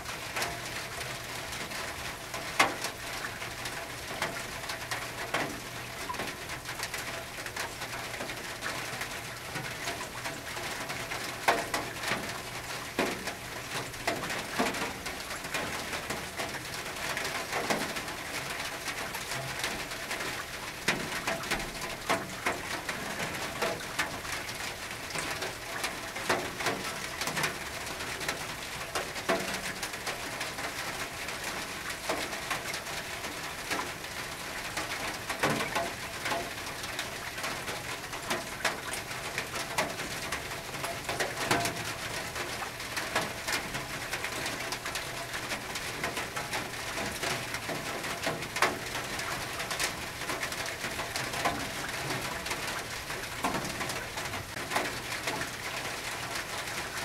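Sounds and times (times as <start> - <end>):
raindrops tapping on metal roof: 0.0 - 57.0.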